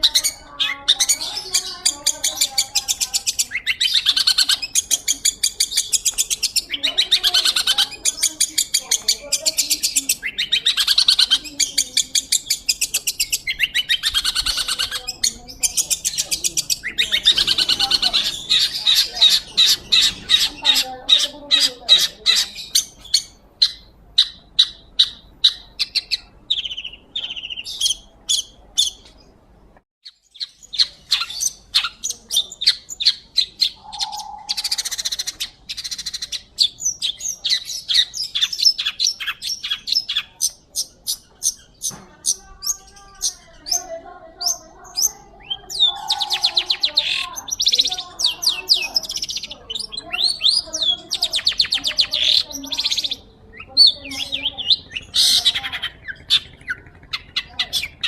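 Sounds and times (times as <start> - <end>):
bird chattering calls: 0.0 - 29.4, 30.0 - 58.0
harsh buzzy bird call: 30.8 - 36.4, 45.2 - 58.0.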